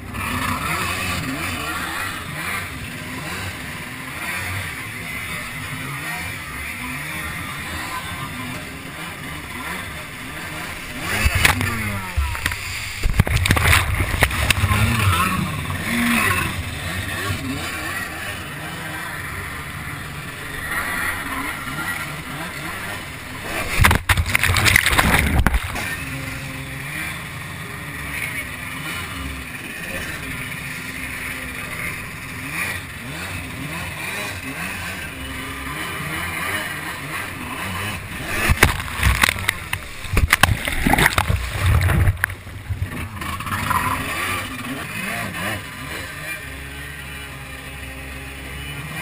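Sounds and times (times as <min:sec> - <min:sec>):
jet ski engine revving: 0:00.0 - 0:49.0
rushing water: 0:00.4 - 0:32.5, 0:35.1 - 0:49.0
wind noise: 0:23.6 - 0:25.9, 0:38.3 - 0:43.1.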